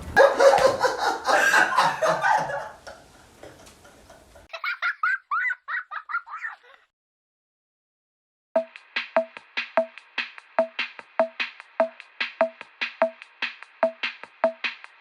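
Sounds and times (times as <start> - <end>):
high-pitched giggling yelps: 0.2 - 2.6, 4.5 - 6.9
people laughing hard: 0.2 - 6.8.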